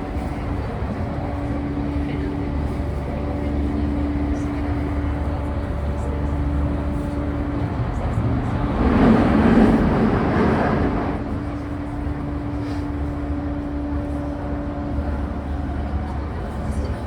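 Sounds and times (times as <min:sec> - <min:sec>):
train motor hum: 0:00.0 - 0:17.0
rush of noise: 0:07.3 - 0:13.0.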